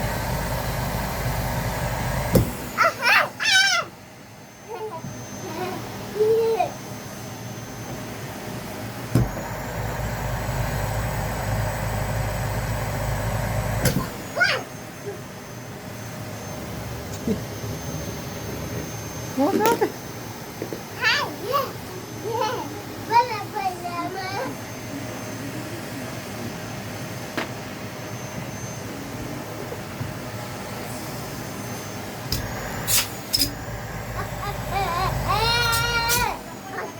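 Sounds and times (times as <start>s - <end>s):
vacuum cleaner motor whining: 0.0s - 3.0s, 4.6s - 20.9s, 26.7s - 36.9s.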